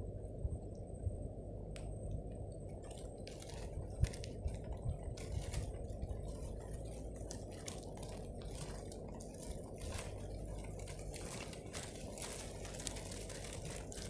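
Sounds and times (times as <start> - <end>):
wind rumbling on microphone: 0.0 - 14.0
rustling and crackling: 2.3 - 14.0.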